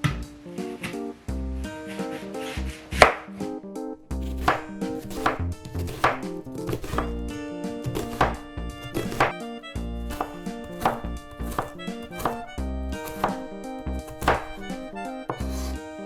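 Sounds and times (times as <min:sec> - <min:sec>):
background music: 0:00.0 - 0:16.0
knife chopping on cutting board: 0:03.0 - 0:03.3, 0:04.1 - 0:15.8.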